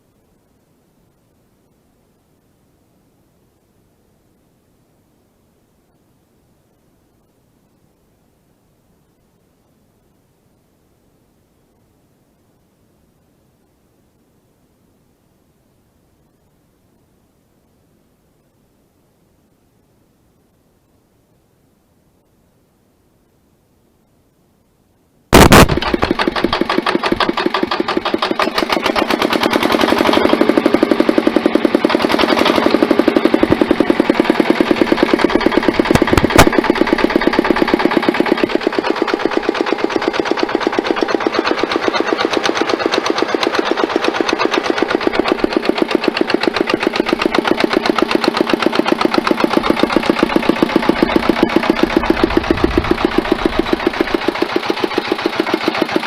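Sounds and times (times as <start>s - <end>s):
diesel tiller engine running: 25.3s - 56.0s.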